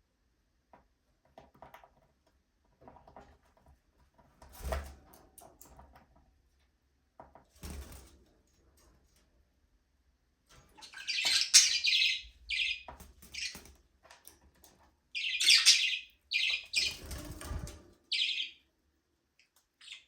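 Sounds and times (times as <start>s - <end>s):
budgies rustling in cage: 7.2s - 9.4s, 10.5s - 18.6s.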